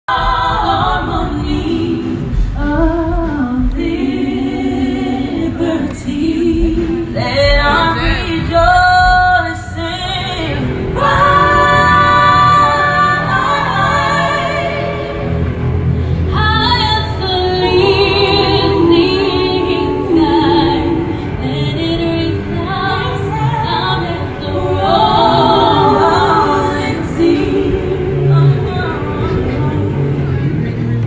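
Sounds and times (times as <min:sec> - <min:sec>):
women singing in harmony: 0:00.0 - 0:30.4.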